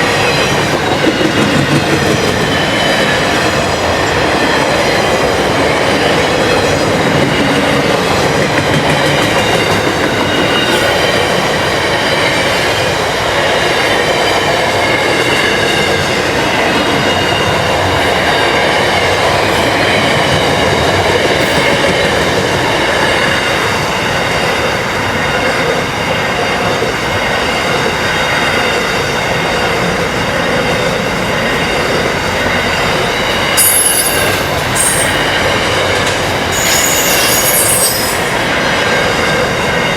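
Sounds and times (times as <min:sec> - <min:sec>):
freight train wheels on rail: 0:00.0 - 0:39.9
wheel squeal: 0:33.1 - 0:35.4, 0:36.4 - 0:38.4.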